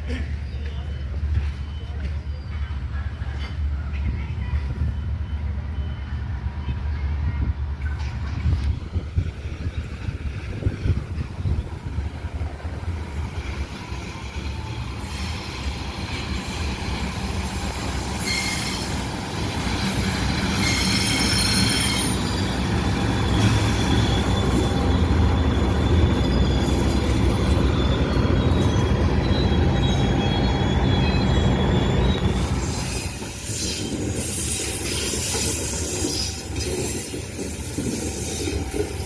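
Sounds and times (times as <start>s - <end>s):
train rumbling past: 0.0s - 39.0s
high-pitched wheel squeal: 18.1s - 19.0s, 20.1s - 39.0s.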